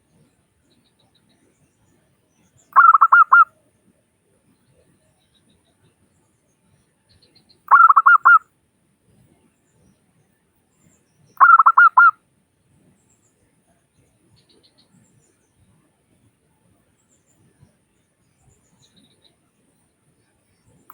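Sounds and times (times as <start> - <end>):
dove cooing: 2.8 - 3.4, 7.7 - 8.4, 11.4 - 12.1.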